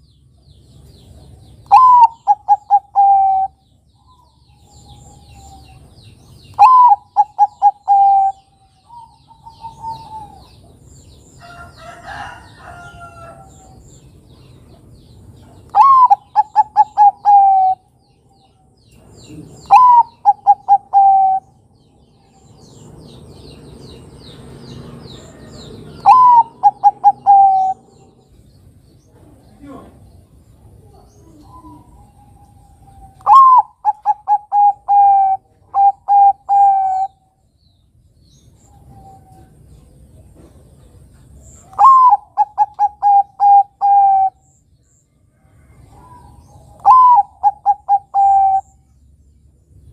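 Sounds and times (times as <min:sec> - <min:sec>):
small birds chirping: 0:00.0 - 0:49.9
dove cooing: 0:01.6 - 0:05.9, 0:06.5 - 0:10.8, 0:15.4 - 0:17.9, 0:19.2 - 0:21.6, 0:25.2 - 0:28.2, 0:30.8 - 0:37.3, 0:41.6 - 0:44.5, 0:45.7 - 0:48.8.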